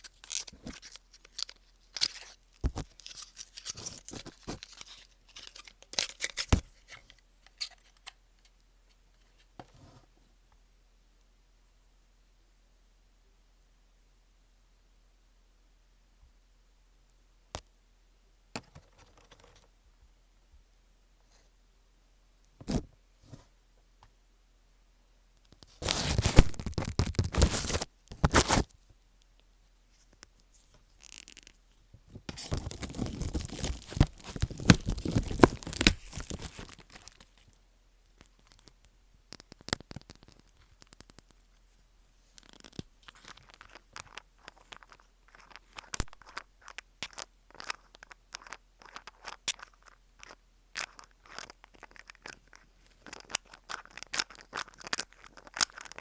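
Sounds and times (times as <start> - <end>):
scratchy rustling: 25.8 - 28.7.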